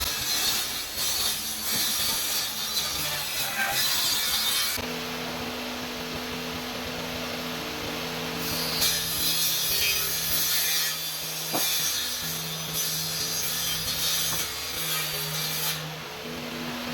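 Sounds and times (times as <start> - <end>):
saw cutting laminate sheet: 0.0 - 4.8, 8.4 - 16.9.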